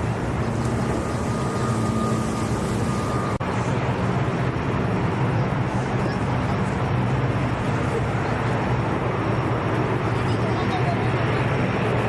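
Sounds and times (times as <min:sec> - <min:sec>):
faint high whine: 0:00.0 - 0:04.6
aircraft engines rumbling: 0:00.0 - 0:12.0.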